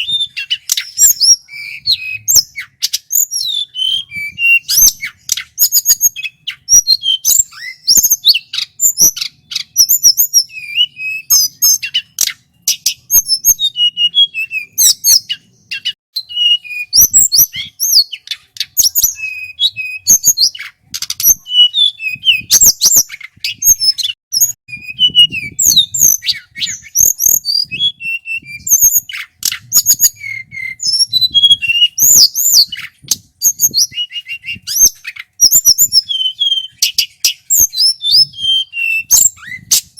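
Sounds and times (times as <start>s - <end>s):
bird singing whistled trills: 0.0s - 39.9s
sharp bird clicks: 0.3s - 3.4s, 4.7s - 10.1s, 17.4s - 19.5s, 20.3s - 21.4s.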